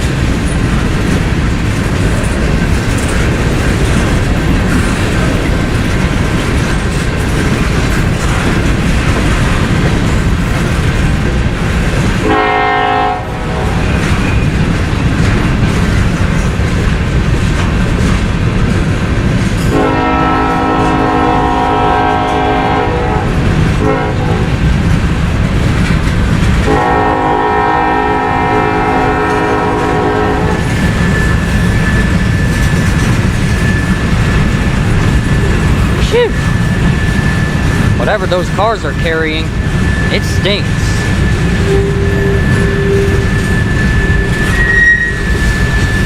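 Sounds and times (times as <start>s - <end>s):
freight train wheels rumbling: 0.0s - 46.0s
locomotive air horn blasts: 12.2s - 14.0s, 19.7s - 24.5s, 26.6s - 30.6s, 41.6s - 43.3s.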